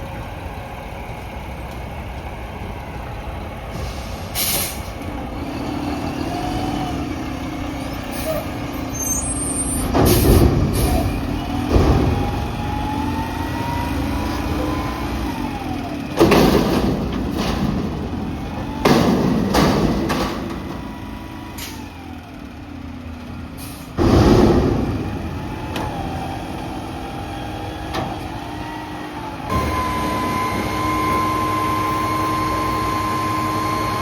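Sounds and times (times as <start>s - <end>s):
garbage truck hydraulics whine: 3.6s - 34.0s
loud metal bangs: 16.2s - 20.9s, 24.0s - 25.6s.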